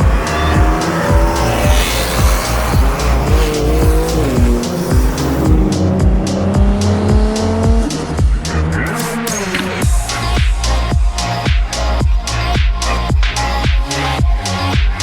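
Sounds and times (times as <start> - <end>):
car tyres squealing: 0.0 - 7.9
electronic music with thumping beat: 0.0 - 15.0.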